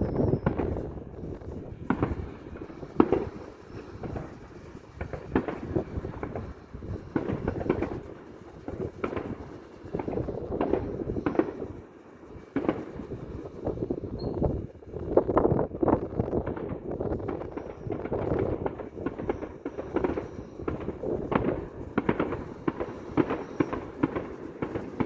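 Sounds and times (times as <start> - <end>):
fireworks shells bursting: 16.4 - 25.0.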